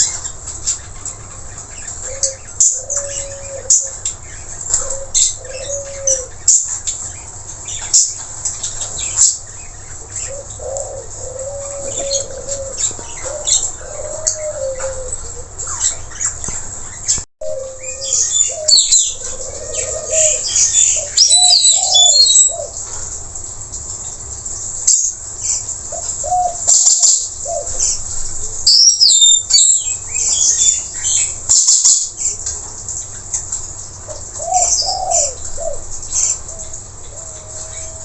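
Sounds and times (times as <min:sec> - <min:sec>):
parrots chirping and shrieking: 0:00.0 - 0:23.2.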